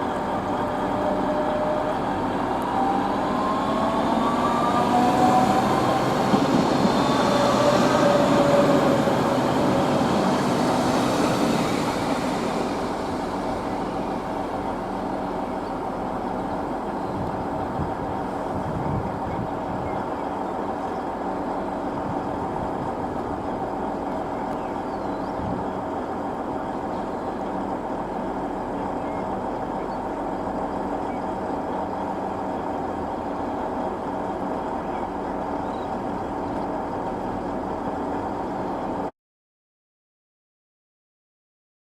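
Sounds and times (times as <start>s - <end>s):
rail vehicle running noise: 0.0s - 39.1s
train wheels squealing: 2.7s - 14.2s.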